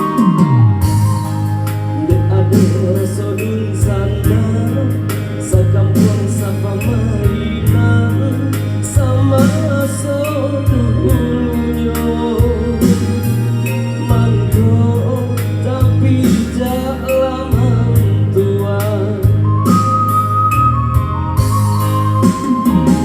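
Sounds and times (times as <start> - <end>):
band playing pop song: 0.0 - 23.0.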